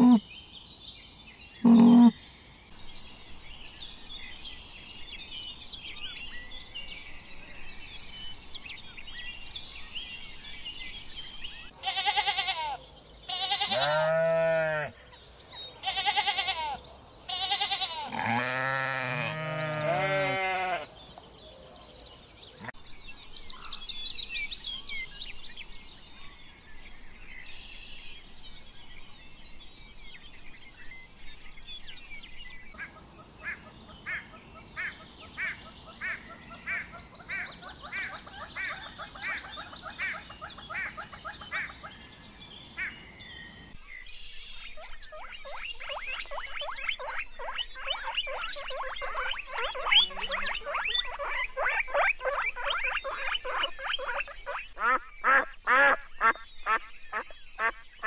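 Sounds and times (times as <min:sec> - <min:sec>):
animal calling loudly: 0:00.0 - 0:00.2, 0:01.6 - 0:02.2
high chirping: 0:01.6 - 0:02.2, 0:44.6 - 0:54.8.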